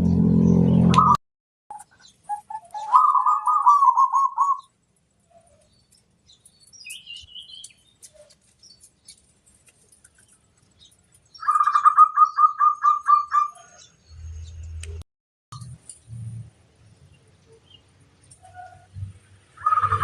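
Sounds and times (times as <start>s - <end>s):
dove cooing: 2.4s - 4.6s.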